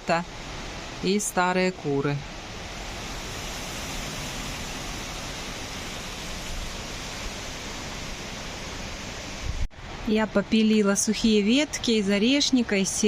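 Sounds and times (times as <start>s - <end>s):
strong wind blowing: 2.3s - 10.1s
wind rumble on microphone: 9.3s - 10.0s.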